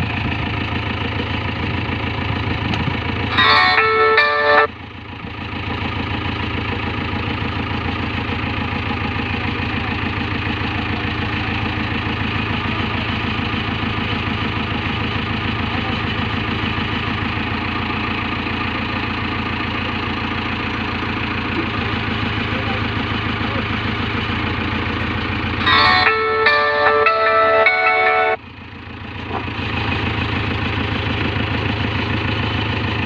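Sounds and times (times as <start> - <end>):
diesel engine idling: 0.0 - 33.0
multi-tone horn blast: 3.3 - 4.7, 25.6 - 28.4.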